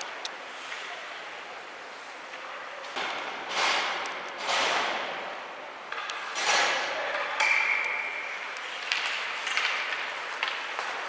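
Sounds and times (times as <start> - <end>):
hockey sticks and puck knocking: 5.9 - 11.0.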